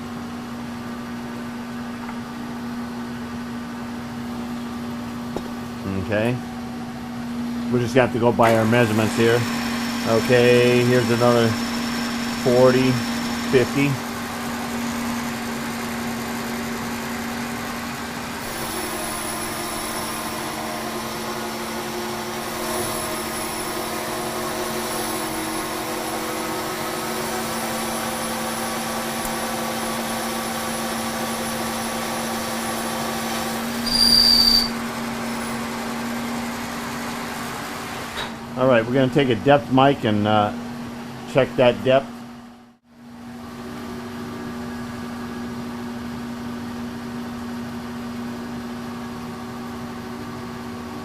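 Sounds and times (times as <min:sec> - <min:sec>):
machine hum with cutting noise: 0:00.0 - 0:38.3
high squeal: 0:33.8 - 0:34.8.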